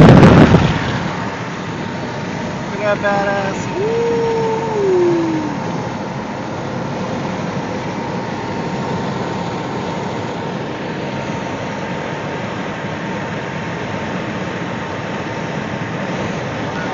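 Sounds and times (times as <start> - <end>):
road and wind noise in car: 0.0 - 16.9.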